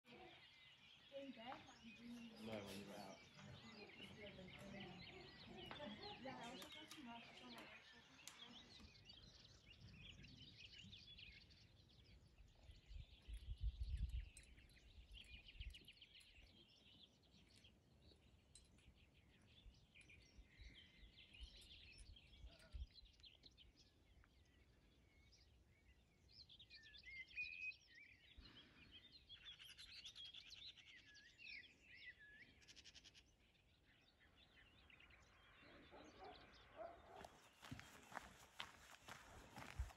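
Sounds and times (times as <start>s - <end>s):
small birds chirping and warbling: 0.0s - 39.9s.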